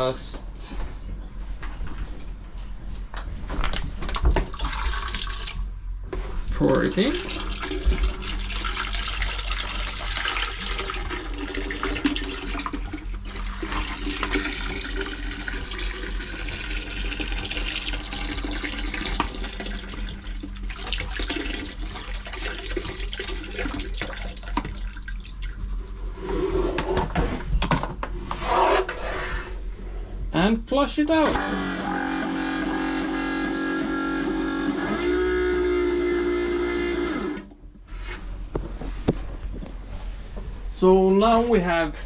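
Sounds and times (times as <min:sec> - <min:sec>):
liquid pouring into toilet bowl: 0:04.1 - 0:05.7, 0:06.7 - 0:26.0.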